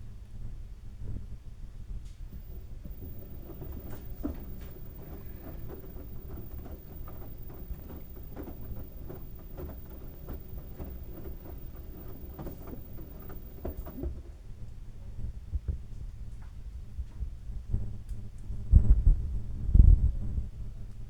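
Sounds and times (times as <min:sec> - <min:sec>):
soft thuds and clicks of tumbling load: 0:02.3 - 0:14.4
washing machine drum rumble: 0:02.3 - 0:14.4.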